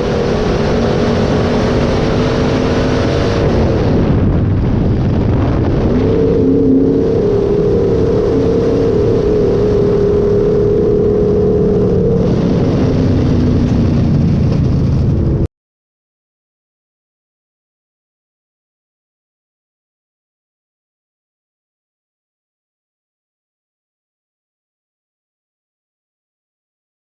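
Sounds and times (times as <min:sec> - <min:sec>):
racing car engine at high revs: 0:00.0 - 0:15.4.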